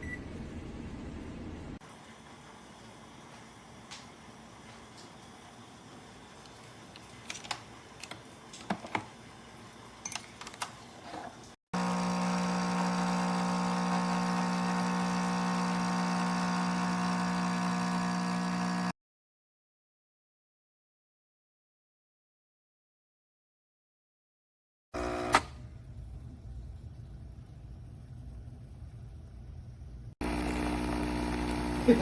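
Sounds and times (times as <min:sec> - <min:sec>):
coffee machine pump humming: 0:11.2 - 0:18.9, 0:25.0 - 0:32.0.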